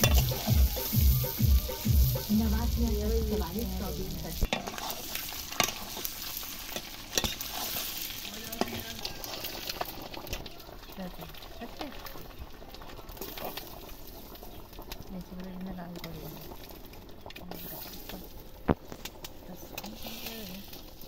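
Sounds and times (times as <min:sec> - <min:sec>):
eggs sizzling in oil: 0:00.0 - 0:21.0
spatula scraping a pan: 0:04.4 - 0:10.0.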